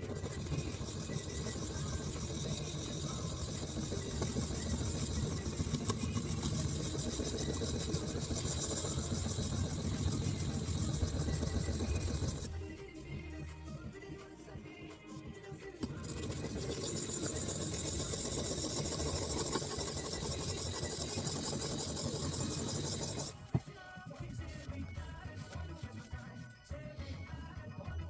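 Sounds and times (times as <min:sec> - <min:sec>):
small electric power tool running: 0:00.0 - 0:12.5, 0:16.0 - 0:23.4.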